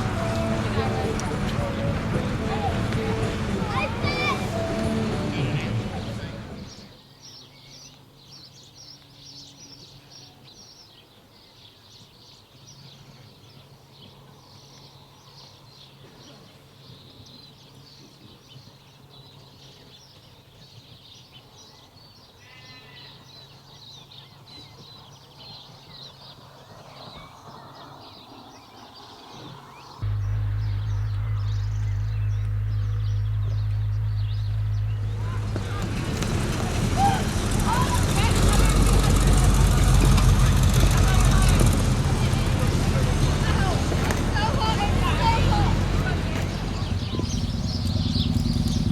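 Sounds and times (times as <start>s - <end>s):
loud low drone: 0.0s - 6.9s, 30.0s - 48.9s
birds chirping: 0.0s - 48.9s
faint steady hum: 30.0s - 48.9s.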